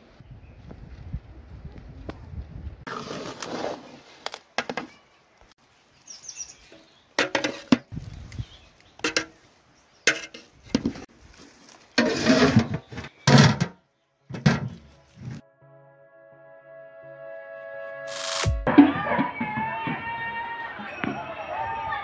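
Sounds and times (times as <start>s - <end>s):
metal spatula scraping a pot: 10.1s - 10.5s, 12.0s - 13.7s.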